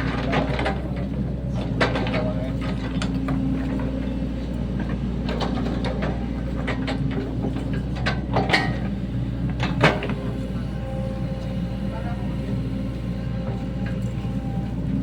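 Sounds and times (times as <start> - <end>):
excavator diesel engine running: 0.0 - 15.0
metallic clanks of excavator bucket: 4.8 - 10.2.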